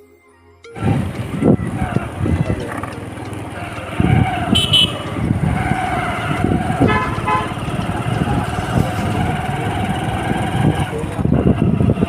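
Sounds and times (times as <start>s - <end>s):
motorcycle engine: 0.7s - 12.0s
road noise: 0.7s - 12.0s
vehicle horn beeping: 1.0s - 8.0s.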